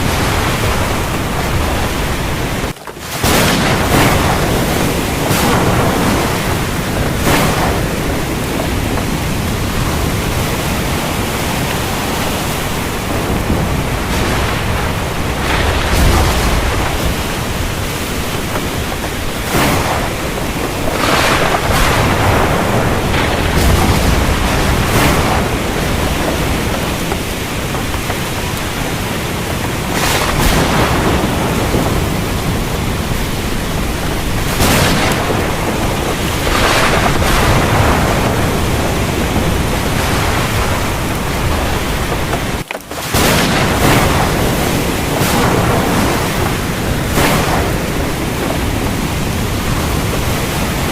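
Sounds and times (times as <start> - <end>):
heavy rain hissing: 0.0 - 50.9
low thunder rolls: 0.0 - 50.9.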